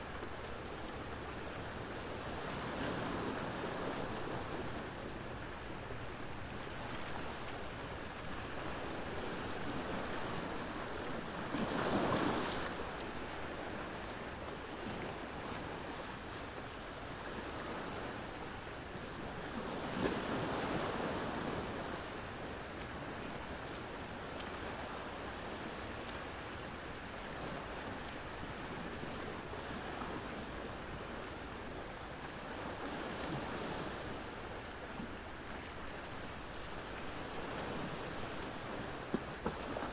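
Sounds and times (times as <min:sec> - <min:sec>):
ocean waves on shore: 0:00.0 - 0:39.9
large waves breaking: 0:09.1 - 0:13.8.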